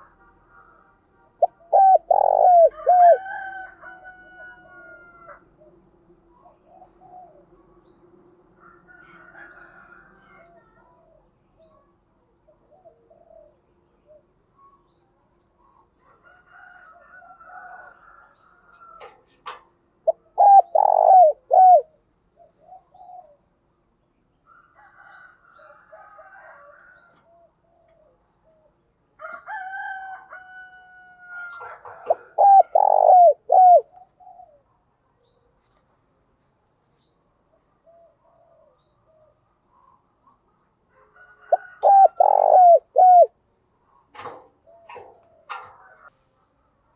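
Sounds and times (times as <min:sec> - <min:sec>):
doves cooing: 0:01.4 - 0:07.7, 0:12.5 - 0:14.5, 0:18.7 - 0:23.6, 0:31.4 - 0:34.8, 0:37.8 - 0:40.1, 0:41.2 - 0:46.1.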